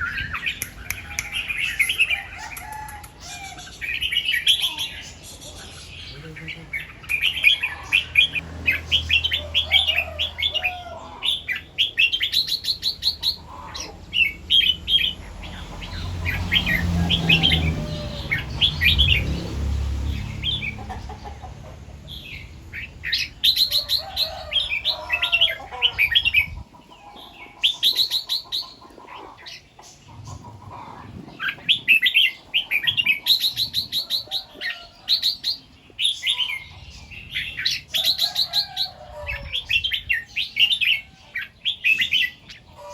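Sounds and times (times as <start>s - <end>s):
bulbul chirping song: 0.0s - 10.6s.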